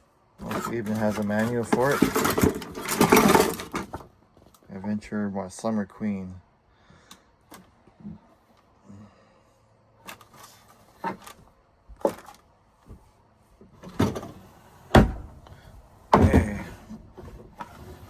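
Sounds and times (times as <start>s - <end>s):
cabinet doors knocking and thudding: 14.9s - 15.4s, 16.1s - 16.9s.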